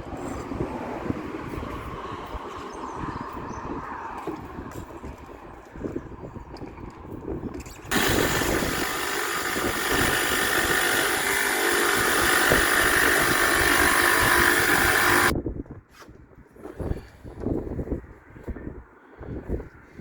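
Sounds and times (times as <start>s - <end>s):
power tool hissing whine: 7.9s - 15.3s.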